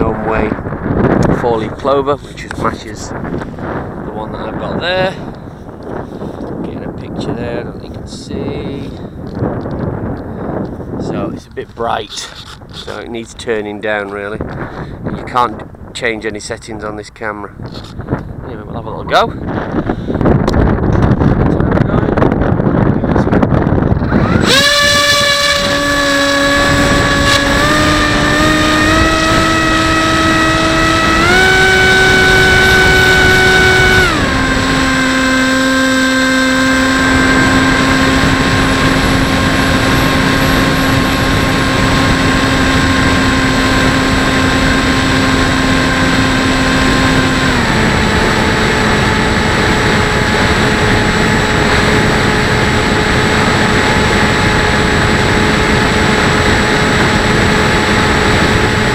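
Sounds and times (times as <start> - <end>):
rushing wind noise: 0.0 - 58.9
model plane motor whine: 23.7 - 58.9.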